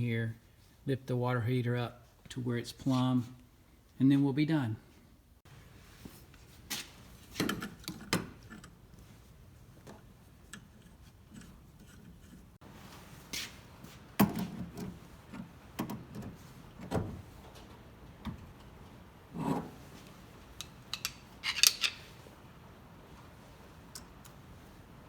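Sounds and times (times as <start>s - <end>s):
hand tools clicking and knocking: 20.6s - 22.2s.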